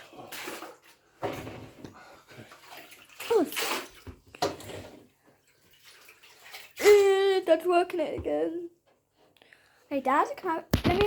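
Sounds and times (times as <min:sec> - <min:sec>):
dirty water sloshing and splashing: 0:00.0 - 0:07.5.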